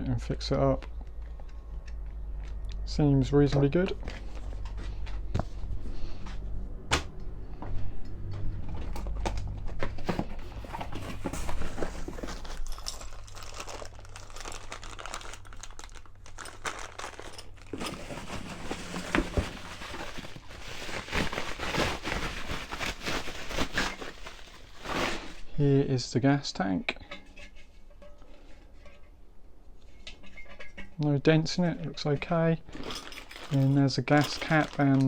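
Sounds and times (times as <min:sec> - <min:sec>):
wrapping crinkling and tearing: 0:09.7 - 0:25.5, 0:32.7 - 0:35.0.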